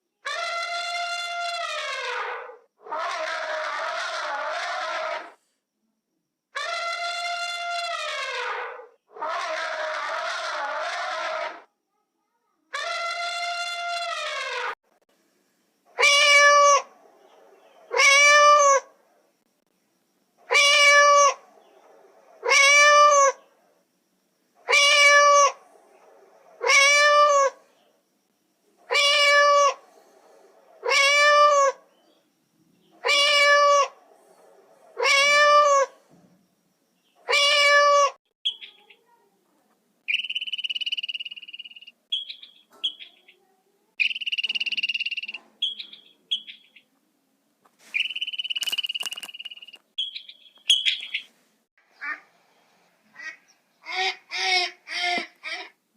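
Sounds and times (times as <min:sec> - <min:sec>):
animal meow-like call: 0:00.3 - 0:05.4, 0:06.6 - 0:11.6, 0:35.0 - 0:36.0
short high chirps: 0:47.9 - 0:51.3.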